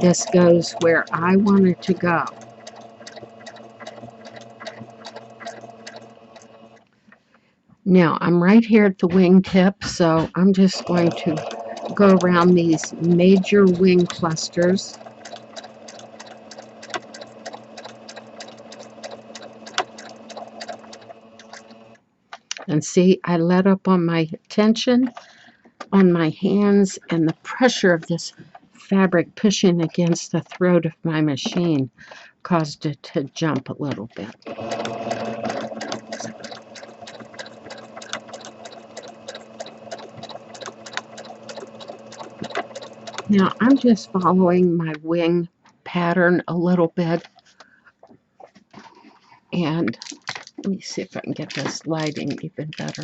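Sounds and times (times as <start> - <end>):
sewing machine motor hum: 0.0 - 6.9, 8.9 - 22.0, 33.6 - 45.1, 48.8 - 53.0
needle ticking: 0.0 - 7.2, 8.7 - 22.8, 32.6 - 45.0, 48.0 - 53.0.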